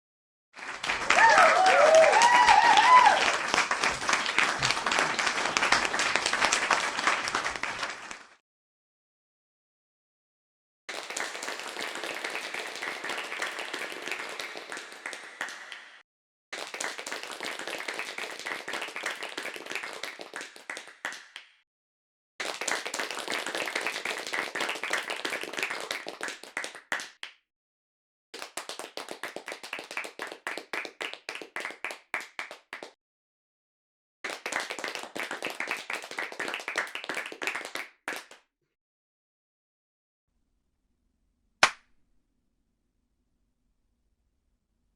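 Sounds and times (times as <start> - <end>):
hand clapping: 0.6 - 8.4, 10.9 - 21.6, 22.4 - 27.4, 28.4 - 33.0, 34.2 - 38.5.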